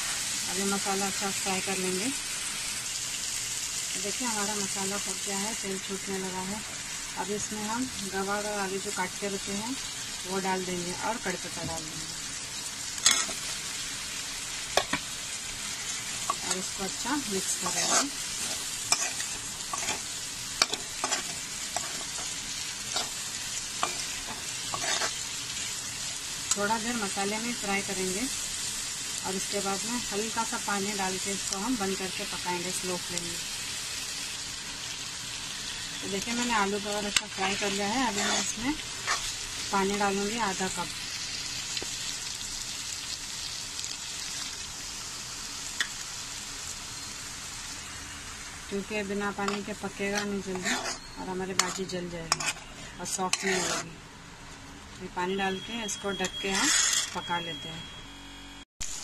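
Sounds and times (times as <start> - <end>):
vegetables sizzling in hot oil: 0.0 - 54.1, 54.7 - 58.0
spatula scraping and tapping pan: 17.6 - 20.0, 20.6 - 23.1, 23.8 - 25.1, 49.4 - 52.7, 53.3 - 53.9.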